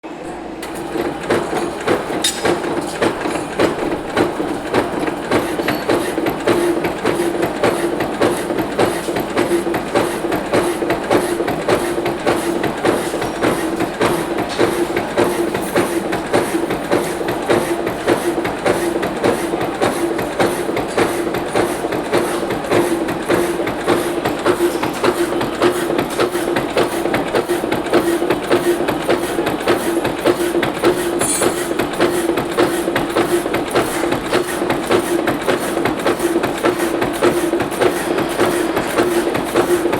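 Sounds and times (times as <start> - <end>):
metal-cutting bandsaw running: 0.6 - 39.9.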